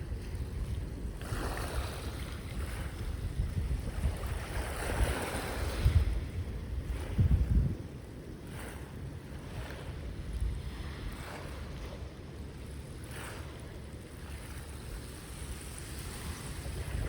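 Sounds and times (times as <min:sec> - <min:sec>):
ocean waves washing on shore: 0:00.0 - 0:17.0
wind buffeting microphone: 0:00.0 - 0:17.0.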